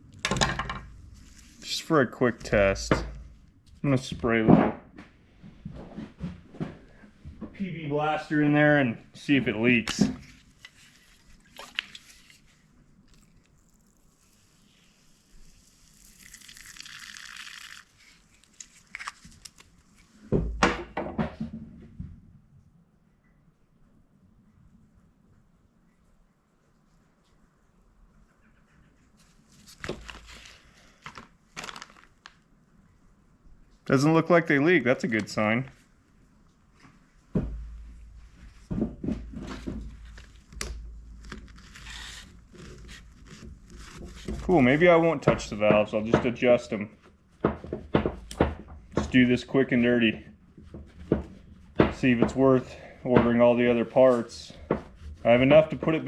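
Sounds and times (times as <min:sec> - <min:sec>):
parts knocking and bumping: 0:00.2 - 0:00.9, 0:47.4 - 0:49.3, 0:50.6 - 0:53.8
tools knocking on workbench: 0:47.4 - 0:49.2.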